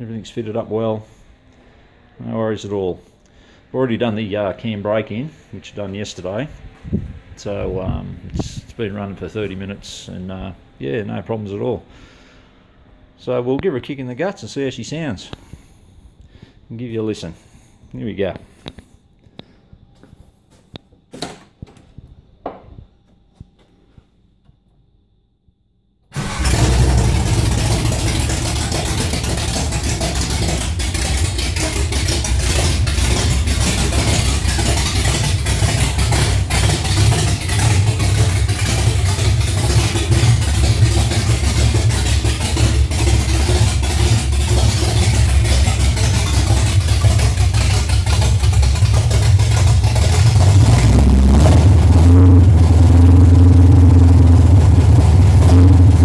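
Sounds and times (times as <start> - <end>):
loud car engine running: 26.2 - 56.0.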